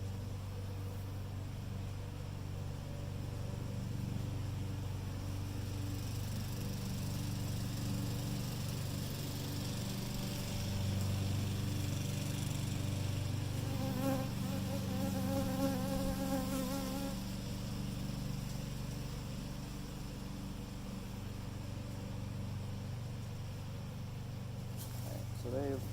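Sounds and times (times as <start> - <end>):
bee buzzing close by: 13.5 - 17.4
bees humming: 13.6 - 17.3.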